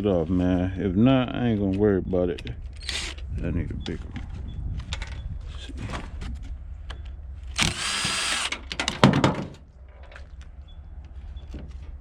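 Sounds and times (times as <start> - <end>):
power drill running: 7.6 - 8.6.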